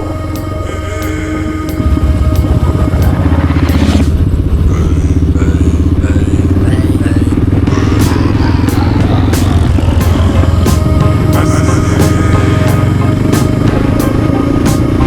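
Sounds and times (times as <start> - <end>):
motorcycle engine running: 1.7 - 15.0.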